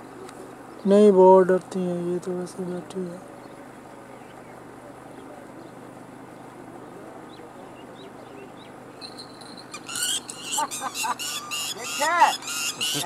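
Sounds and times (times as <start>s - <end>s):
loud shrill bird calls: 8.0s - 13.0s.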